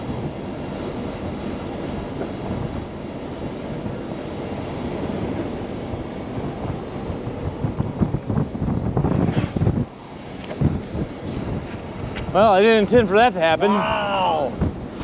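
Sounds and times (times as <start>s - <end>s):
diesel truck engine rumbling: 0.0s - 15.0s.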